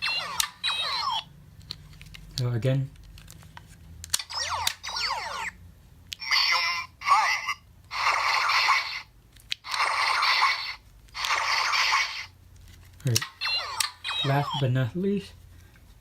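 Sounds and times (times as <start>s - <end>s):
toy blast sound effects: 0.0s - 1.3s, 4.2s - 5.6s, 6.2s - 12.3s, 13.2s - 14.7s
toy laser zaps: 0.0s - 1.3s, 4.2s - 5.6s, 6.2s - 12.3s, 13.2s - 14.6s.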